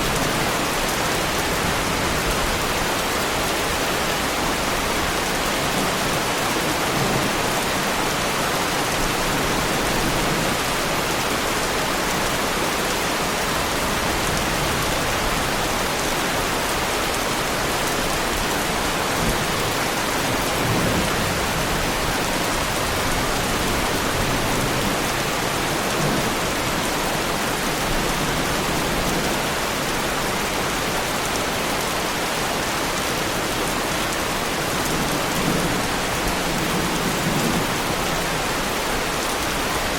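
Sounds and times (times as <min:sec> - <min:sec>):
heavy rain on car body: 0:12.8 - 0:27.0, 0:27.6 - 0:39.9.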